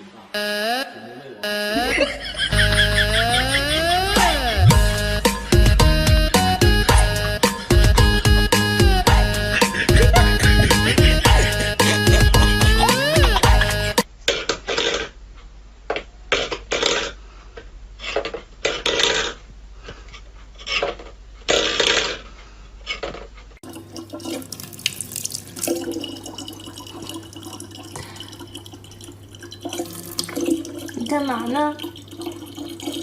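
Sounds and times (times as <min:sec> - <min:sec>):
low hum: 0:01.7 - 0:14.0
water splashing: 0:23.6 - 0:33.0.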